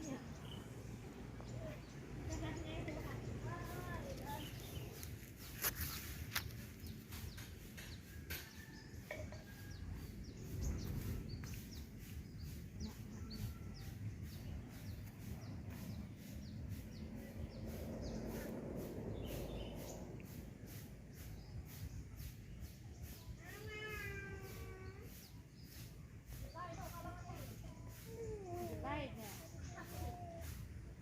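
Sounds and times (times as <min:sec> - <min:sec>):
small birds chirping: 0:00.0 - 0:31.0
low background rumble: 0:10.2 - 0:23.0.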